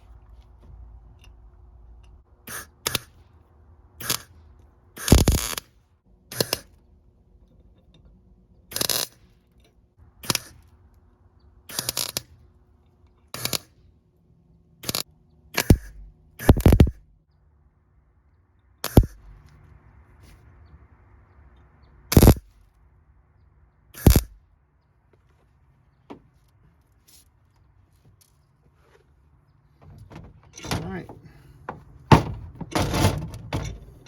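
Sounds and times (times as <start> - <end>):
welder crackling bursts: 4.0 - 4.3, 5.0 - 5.7, 8.7 - 9.2, 11.7 - 12.3, 13.4 - 13.7, 15.6 - 17.0, 18.8 - 19.2, 22.1 - 22.4, 24.0 - 24.4.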